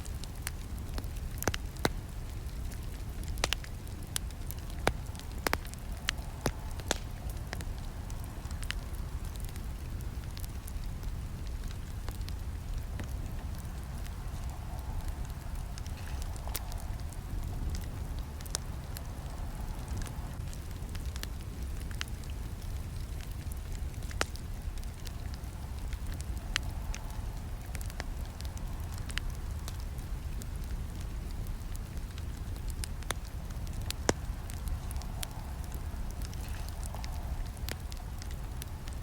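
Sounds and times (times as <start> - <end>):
campfire flames rumbling: 0.0 - 39.0
wood crackling and popping: 0.0 - 39.0
loud wood snaps: 6.4 - 7.1.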